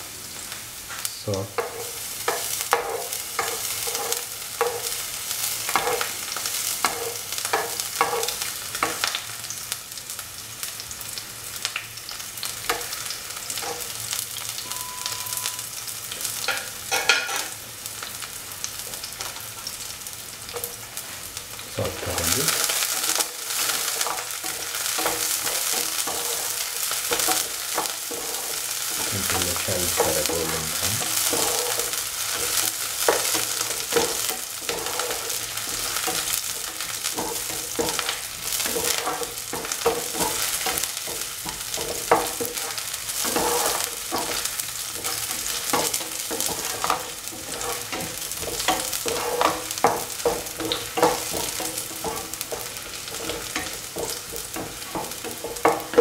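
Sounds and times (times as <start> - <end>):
shallots sizzling in hot oil: 0.0 - 56.0
spatula scraping and knocking pan: 1.6 - 5.0, 5.6 - 9.1, 12.7 - 13.9, 21.9 - 56.0.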